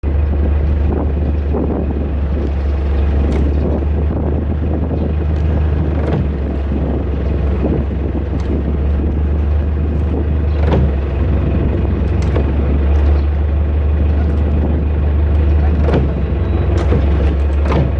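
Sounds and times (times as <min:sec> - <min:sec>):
machinery droning: 0:00.0 - 0:17.9.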